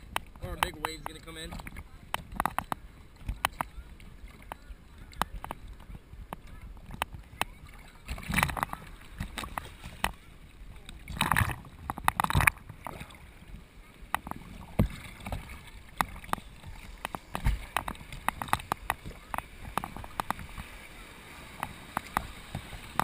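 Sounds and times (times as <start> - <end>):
rush of water: 0.0 - 23.0
seawater splashing: 0.0 - 23.0
sharp taps and knocks: 0.1 - 3.7, 14.1 - 20.7.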